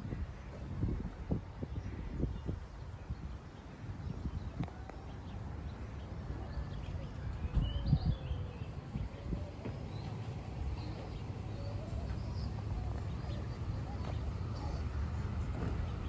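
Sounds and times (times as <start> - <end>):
faint bird chirps: 7.5 - 16.0
footsteps on pavement: 9.6 - 16.0.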